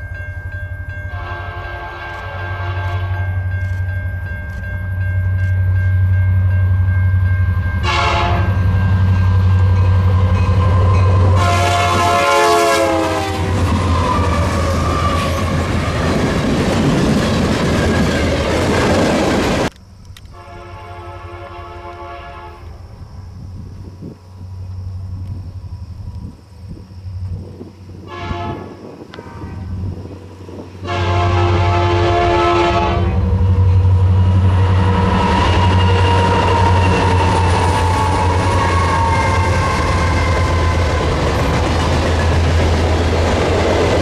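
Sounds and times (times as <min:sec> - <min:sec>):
locomotive engine drone: 0:00.0 - 0:44.0
rush of passing train: 0:00.0 - 0:44.0
locomotive horn blasts: 0:01.1 - 0:03.6, 0:07.8 - 0:16.0, 0:20.3 - 0:22.8, 0:28.0 - 0:30.0, 0:30.8 - 0:42.2.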